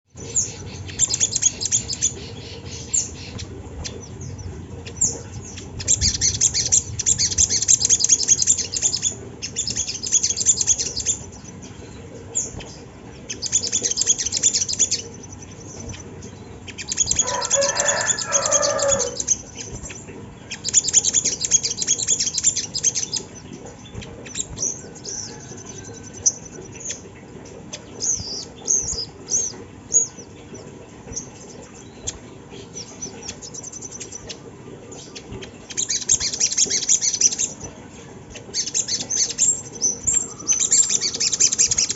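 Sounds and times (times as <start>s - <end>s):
bird high-pitched trills: 0.2s - 41.9s
lower warbling bird call: 16.8s - 19.4s.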